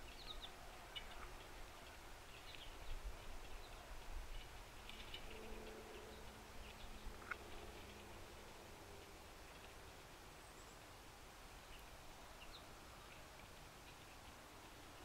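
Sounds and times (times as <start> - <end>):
faint steady low hum: 0.0 - 15.0
low outdoor rumble: 0.0 - 15.0.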